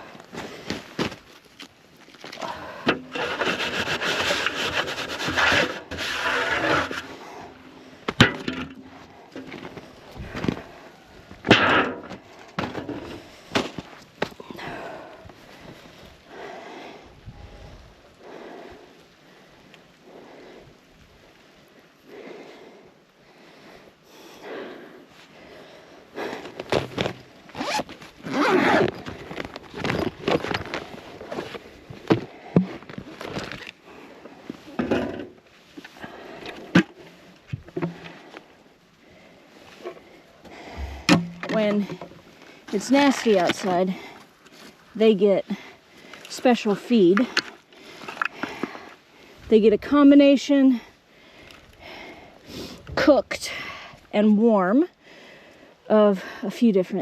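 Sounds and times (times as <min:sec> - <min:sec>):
rough scraping and rubbing: 0:02.9 - 0:07.5
quick rasping and rustling: 0:03.1 - 0:07.2.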